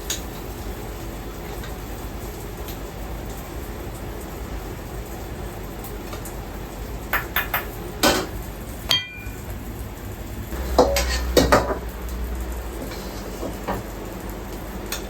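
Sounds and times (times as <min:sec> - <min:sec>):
ringing clink: 0:08.9 - 0:09.4
dishes and utensils clinking: 0:08.9 - 0:09.5, 0:10.6 - 0:11.9.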